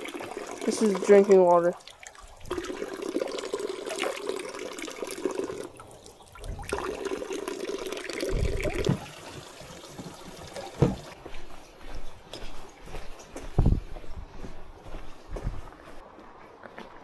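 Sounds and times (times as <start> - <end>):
water fountain splashing: 0.0 - 11.2
low thumps: 8.3 - 9.1.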